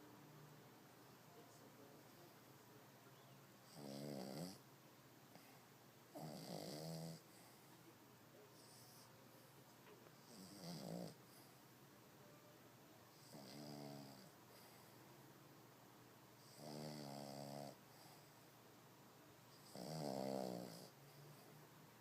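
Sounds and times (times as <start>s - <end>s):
dog snoring: 3.6s - 4.6s, 6.1s - 7.6s, 8.5s - 9.1s, 10.1s - 11.6s, 13.1s - 14.9s, 16.4s - 18.4s, 19.5s - 21.5s.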